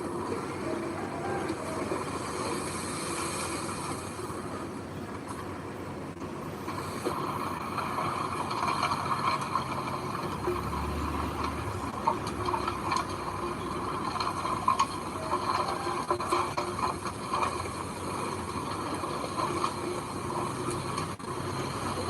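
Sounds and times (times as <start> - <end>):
heavy machinery clattering: 6.2 - 22.0.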